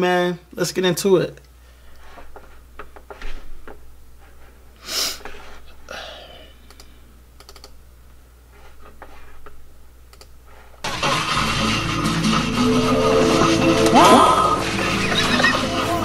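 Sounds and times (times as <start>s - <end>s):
computer keyboard clicks: 6.7s - 7.8s, 10.1s - 10.3s.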